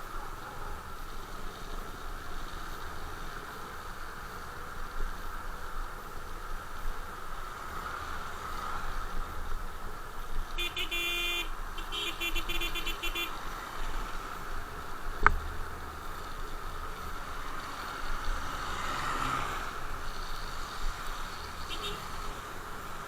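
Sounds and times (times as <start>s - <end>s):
road and wind noise: 0.0s - 23.0s
vehicle horn honking: 10.6s - 13.5s, 21.6s - 22.1s.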